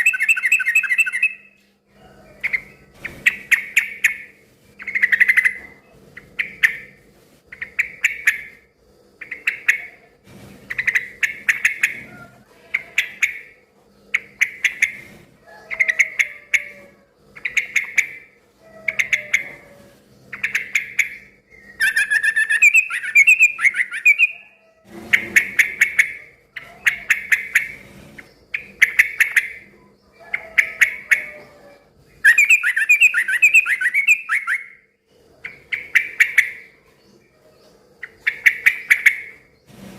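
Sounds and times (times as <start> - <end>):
bulbul singing: 0.0 - 1.6, 20.3 - 24.6, 32.2 - 34.8.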